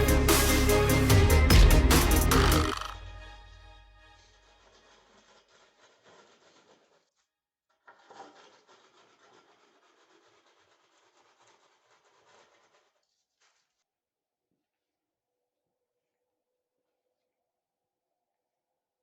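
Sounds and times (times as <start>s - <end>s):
trowel scraping on screed: 4.2s - 13.8s.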